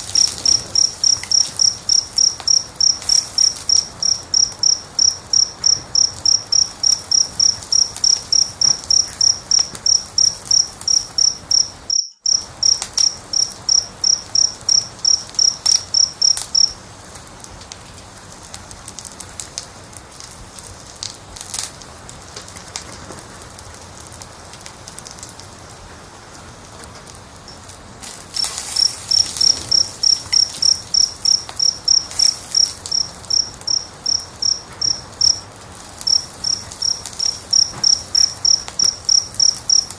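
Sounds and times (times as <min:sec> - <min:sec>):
cricket chirping: 0:00.0 - 0:16.9, 0:27.4 - 0:39.9
fire crackling and popping: 0:00.0 - 0:39.9.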